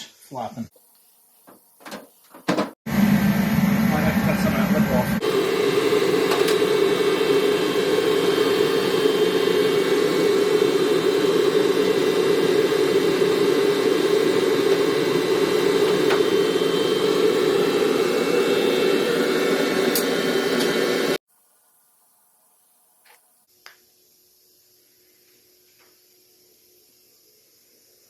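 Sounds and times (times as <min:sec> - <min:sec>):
machine whirring with high whine: 0:02.9 - 0:21.2.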